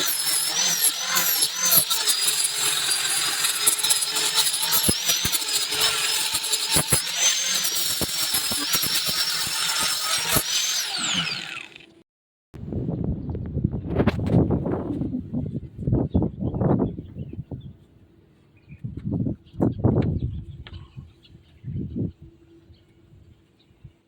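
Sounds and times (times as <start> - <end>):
power tool whining: 0.0 - 12.0.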